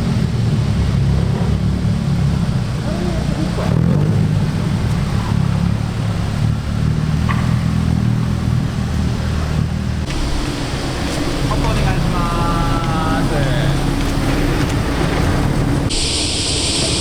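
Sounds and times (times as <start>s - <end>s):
car exhaust rumbling: 0.0s - 17.0s.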